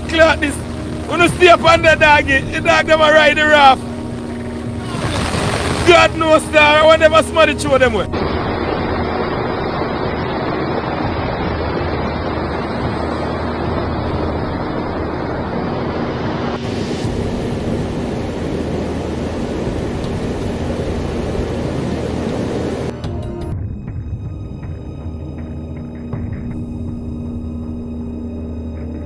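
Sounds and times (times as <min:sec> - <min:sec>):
wind buffeting microphone: 0:00.0 - 0:06.9, 0:08.0 - 0:24.4
water rushing: 0:00.0 - 0:23.5
wind rushing: 0:00.0 - 0:24.2.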